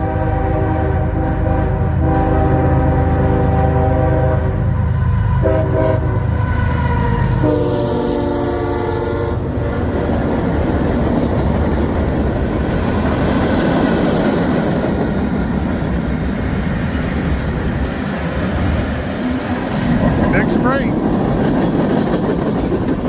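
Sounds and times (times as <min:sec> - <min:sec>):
train horn chord: 0:00.0 - 0:06.4, 0:07.3 - 0:09.5
train wheels rumbling on rails: 0:00.0 - 0:23.0.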